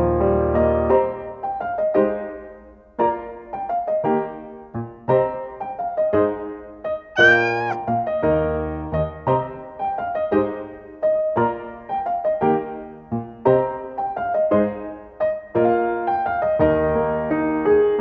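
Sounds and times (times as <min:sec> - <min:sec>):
cat meowing: 0:07.2 - 0:07.8.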